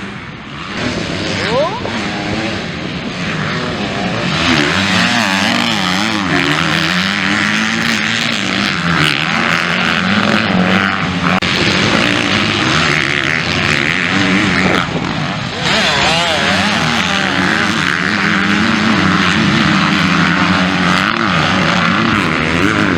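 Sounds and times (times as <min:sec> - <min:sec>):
motocross bike engines revving: 0:00.0 - 0:22.9.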